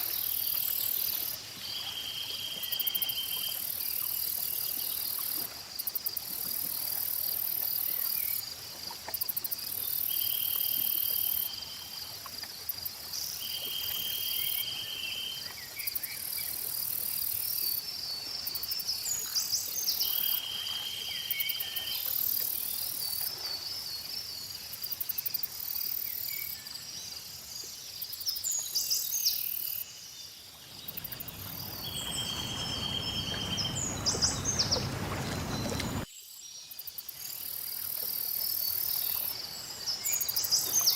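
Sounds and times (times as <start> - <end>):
lake water lapping: 0.0 - 29.8, 30.4 - 36.1, 37.1 - 40.9
steady insect trill: 0.0 - 34.7, 36.1 - 40.9
high insect chorus: 0.0 - 40.9
birds chirping: 30.7 - 36.1.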